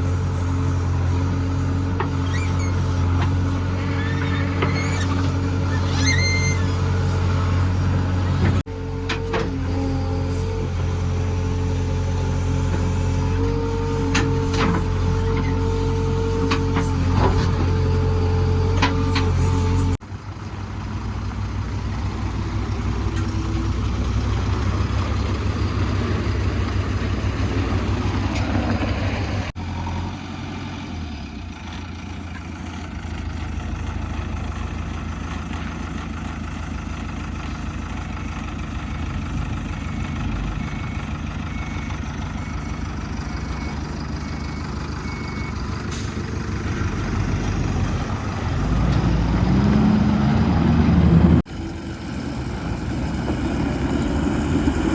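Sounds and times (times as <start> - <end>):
heavy diesel engines running: 0.0 - 54.9
engine revving: 44.3 - 54.9.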